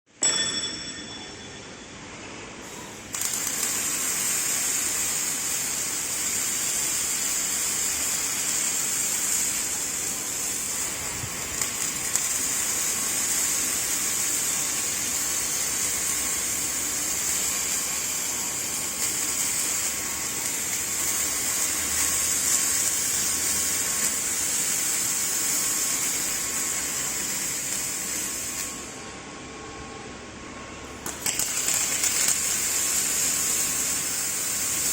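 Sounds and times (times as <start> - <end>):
brief ringing tone: 0.2 - 2.1
welding machine hissing: 2.6 - 29.1, 30.9 - 34.9.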